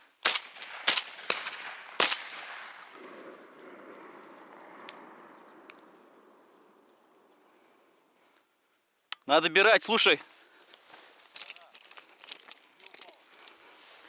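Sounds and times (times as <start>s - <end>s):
shotgun shots with echo: 0.2s - 3.4s.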